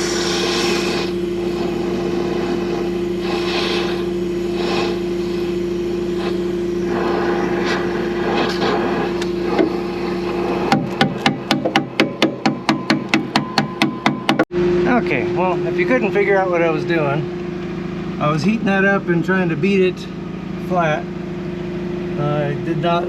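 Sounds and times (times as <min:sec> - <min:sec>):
torch roaring: 0:00.0 - 0:11.5
machine hum: 0:00.0 - 0:23.0.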